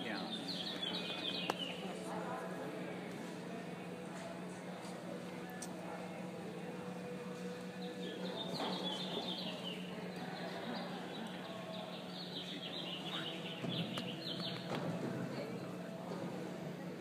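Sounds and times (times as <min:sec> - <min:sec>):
small birds chirping: 0:07.8 - 0:14.7.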